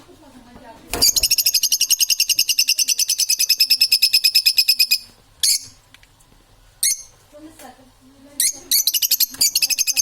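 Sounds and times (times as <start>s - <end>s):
parrot trilling: 1.1s - 5.8s, 8.4s - 10.0s
parrot shrill calls: 8.4s - 10.0s.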